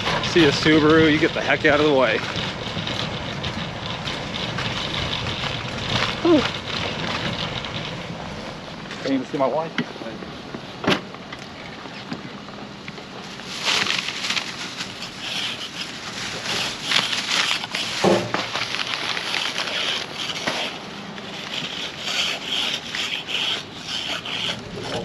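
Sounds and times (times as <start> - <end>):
footsteps crunching through snow: 13.2 - 20.8.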